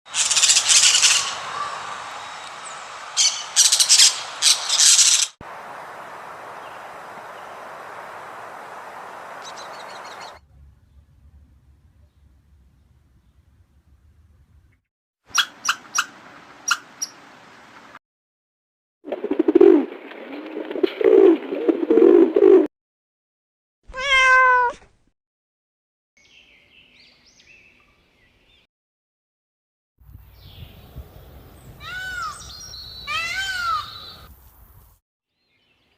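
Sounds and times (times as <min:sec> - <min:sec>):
harsh raspy bird calls: 0:00.1 - 0:02.1, 0:03.2 - 0:05.4, 0:31.8 - 0:34.3
bird chirping: 0:00.1 - 0:05.4, 0:09.4 - 0:11.3, 0:26.2 - 0:28.7, 0:30.3 - 0:34.3.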